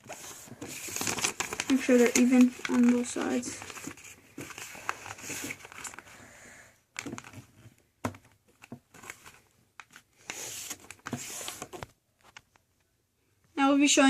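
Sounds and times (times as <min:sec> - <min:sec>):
paper being creased: 0:00.0 - 0:06.1, 0:08.9 - 0:11.8
paper rustling: 0:00.0 - 0:06.2, 0:07.0 - 0:12.6.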